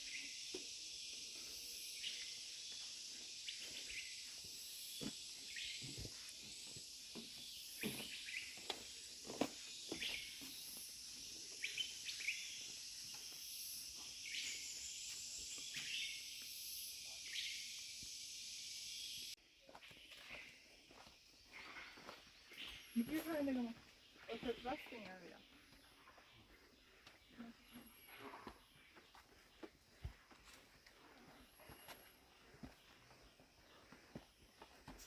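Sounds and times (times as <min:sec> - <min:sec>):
insects chorus: 0:00.0 - 0:35.0
bird chirps: 0:09.8 - 0:30.3.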